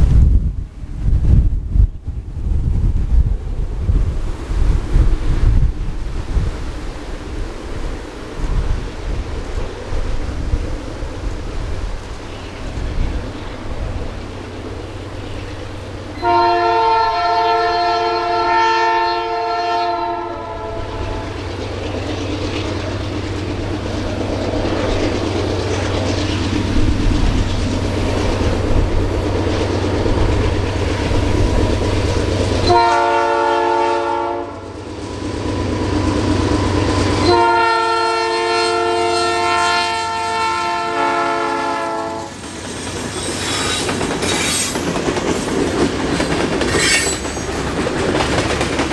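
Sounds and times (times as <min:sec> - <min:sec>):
locomotive engine rumble: 0:05.6 - 0:39.4
locomotive air horn blasts: 0:16.2 - 0:21.3, 0:32.6 - 0:34.7, 0:37.2 - 0:42.3.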